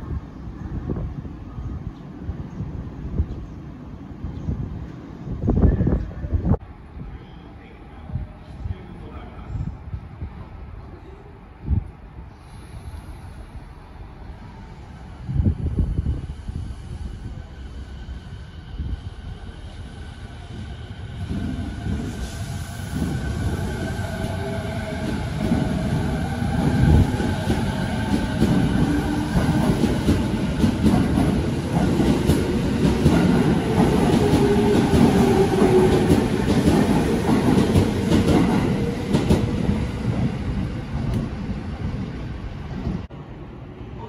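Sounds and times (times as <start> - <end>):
train wheels clattering on rails: 25.0 - 40.3.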